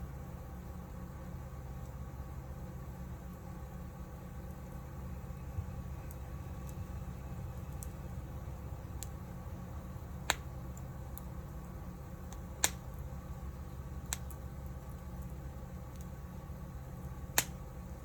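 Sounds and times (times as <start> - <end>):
wood fire crackling: 0.0 - 18.0
firewood popping: 3.2 - 18.0.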